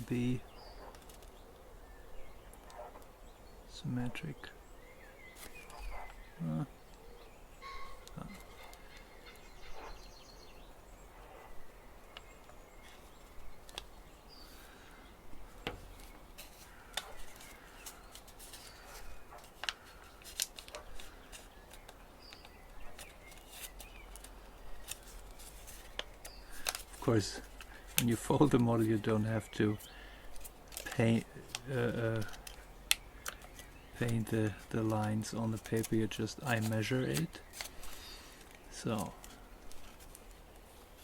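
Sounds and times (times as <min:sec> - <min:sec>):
paper folding crackles: 0:00.0 - 0:01.4, 0:05.4 - 0:06.2, 0:12.0 - 0:41.0
paper rustling: 0:00.8 - 0:01.4, 0:05.3 - 0:05.9, 0:12.4 - 0:41.0.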